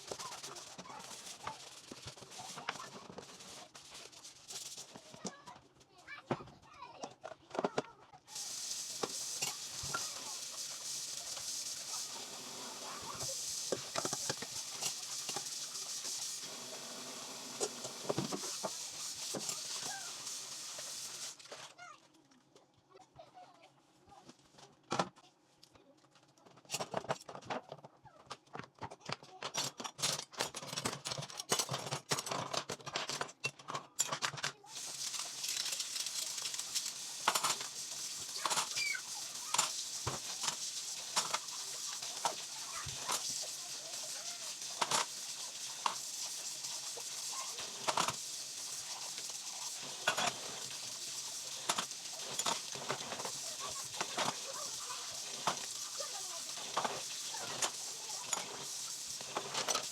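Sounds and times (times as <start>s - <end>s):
tap running: 7.5s - 21.4s, 34.7s - 59.9s
dishes and cutlery clinking: 29.0s - 43.3s, 56.5s - 59.9s.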